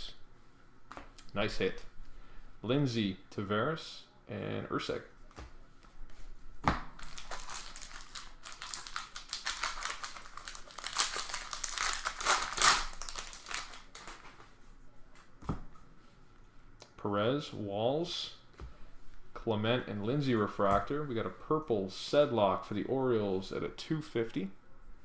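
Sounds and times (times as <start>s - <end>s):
foil wrapper tearing and crinkling: 7.0s - 14.2s.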